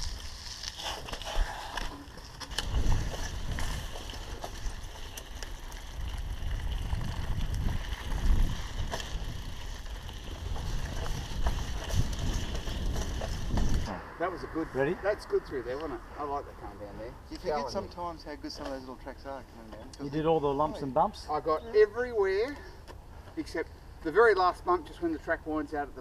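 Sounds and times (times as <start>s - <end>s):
bike clicks and rattles: 0.0s - 13.9s
tyres rumbling on dirt: 2.1s - 15.8s
wind buffeting microphone: 2.5s - 15.4s.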